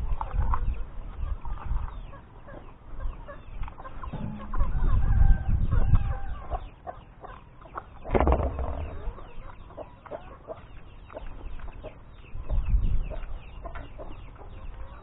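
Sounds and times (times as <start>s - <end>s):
chickens clucking: 0.0s - 15.0s
low rumble: 4.1s - 6.5s, 8.0s - 9.5s.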